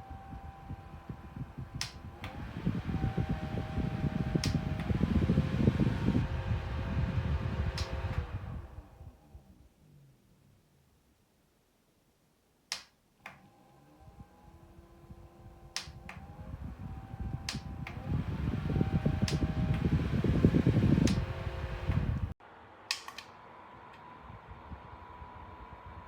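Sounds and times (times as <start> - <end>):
fan motor hum: 0.0 - 10.0, 13.2 - 26.0
fan button clicks: 1.3 - 6.3, 7.5 - 8.7, 15.7 - 16.4, 17.2 - 22.3, 22.9 - 23.3.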